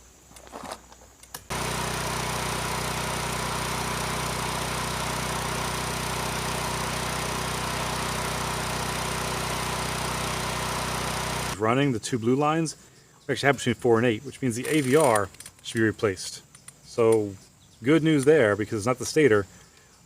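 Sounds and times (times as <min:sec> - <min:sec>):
generator engine running: 0:01.5 - 0:11.6.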